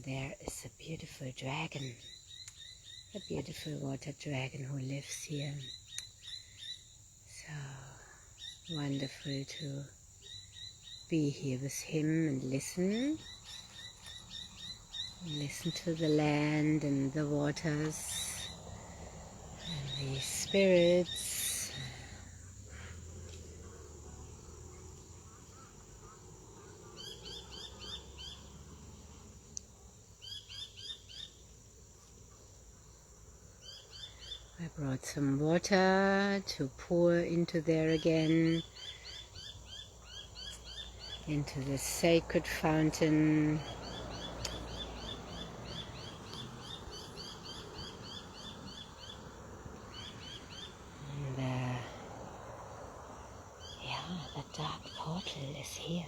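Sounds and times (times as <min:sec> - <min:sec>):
low outdoor hiss: 0:00.0 - 0:56.0
high insect-like hum: 0:00.5 - 0:56.0
bird chirping: 0:01.4 - 0:03.8, 0:04.5 - 0:07.5, 0:08.4 - 0:29.6, 0:30.2 - 0:32.5, 0:37.0 - 0:52.0, 0:52.9 - 0:56.0.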